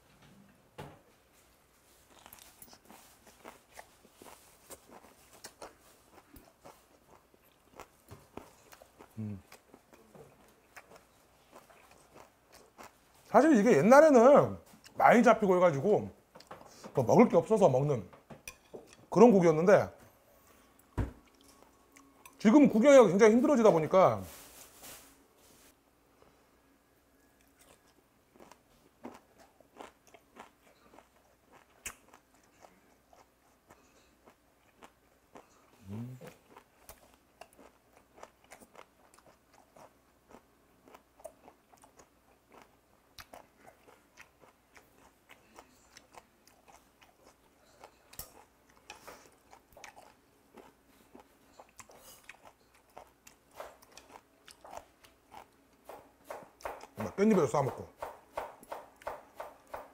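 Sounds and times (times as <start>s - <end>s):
chewing and crunching fish: 2.1s - 13.2s, 27.4s - 55.6s.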